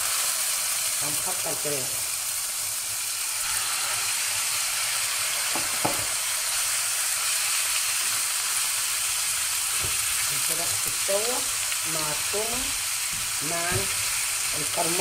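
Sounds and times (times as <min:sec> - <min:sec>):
chicken sizzling in hot oil: 0:00.0 - 0:15.0
spatula stirring in pan: 0:09.6 - 0:15.0.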